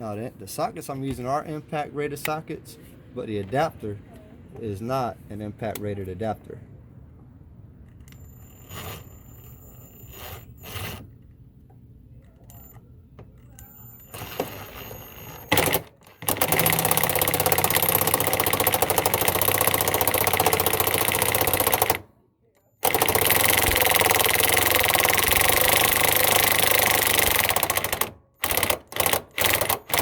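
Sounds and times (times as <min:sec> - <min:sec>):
impact driver hammering: 0:15.5 - 0:22.0, 0:22.8 - 0:30.0.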